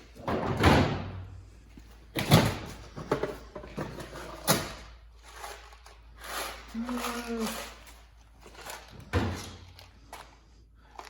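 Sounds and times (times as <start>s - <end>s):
sliding scrapes: 5.1s - 9.9s.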